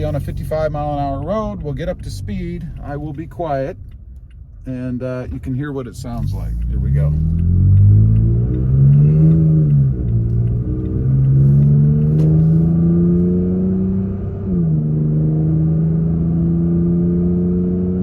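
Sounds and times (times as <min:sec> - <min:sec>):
truck engine accelerating: 0:00.0 - 0:18.0.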